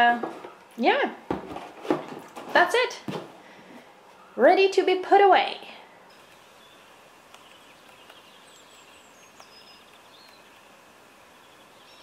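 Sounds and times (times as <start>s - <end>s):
high bird chirps: 6.4s - 12.0s.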